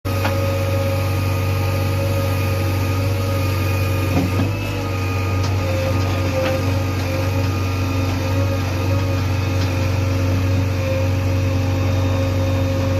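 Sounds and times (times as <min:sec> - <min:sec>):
diesel machinery engine humming: 0:00.1 - 0:12.9.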